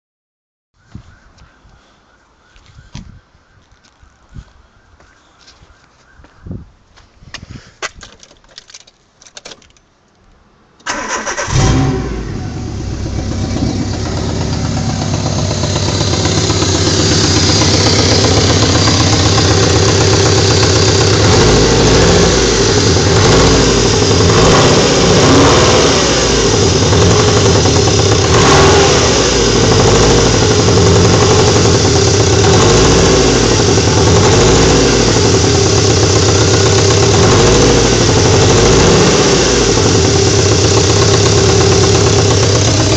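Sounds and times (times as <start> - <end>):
car engine starting and idling: 10.8 - 42.9.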